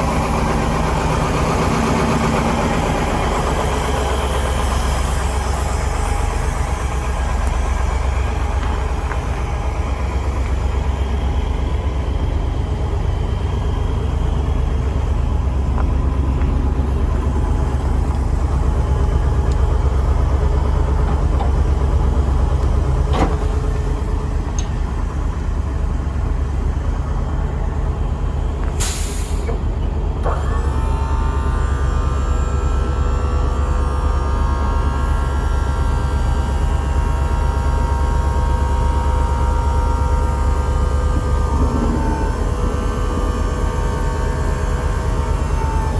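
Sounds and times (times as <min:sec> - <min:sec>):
steady whine: 0:00.0 - 0:29.2
truck engine rumbling: 0:00.0 - 0:45.9.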